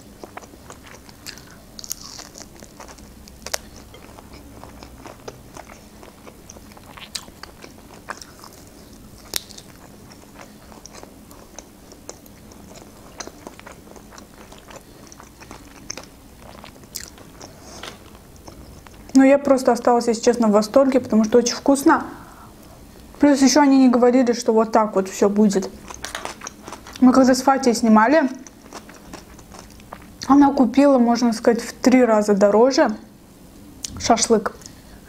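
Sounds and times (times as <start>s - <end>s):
person chewing meat: 0.0s - 19.2s, 25.7s - 27.0s, 28.4s - 30.3s.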